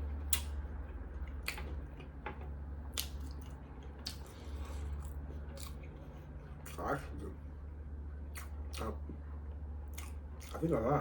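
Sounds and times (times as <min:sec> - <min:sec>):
person chewing sandwich: 0:00.0 - 0:02.0, 0:02.8 - 0:07.3, 0:08.2 - 0:09.1, 0:09.8 - 0:10.8.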